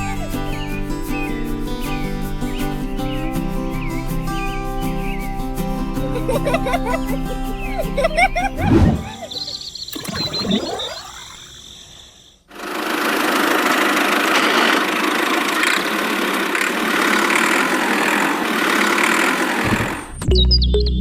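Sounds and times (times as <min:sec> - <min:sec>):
engine running: 0:06.0 - 0:11.8, 0:12.5 - 0:20.2.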